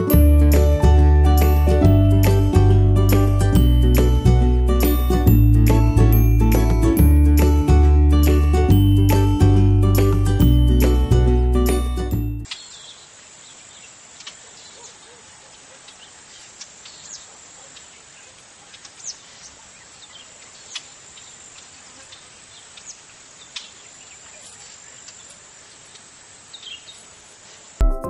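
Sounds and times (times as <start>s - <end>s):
steady background hiss: 12.5s - 27.8s.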